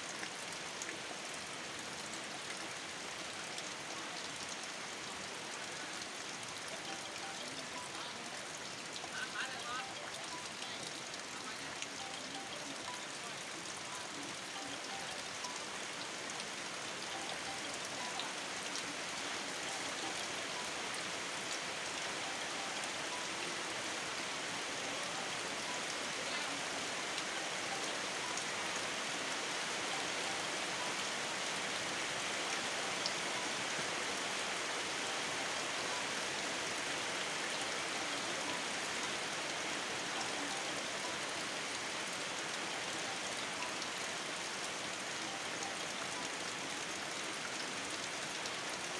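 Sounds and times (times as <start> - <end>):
rain falling: 0.0 - 48.9
water drips: 0.0 - 48.9.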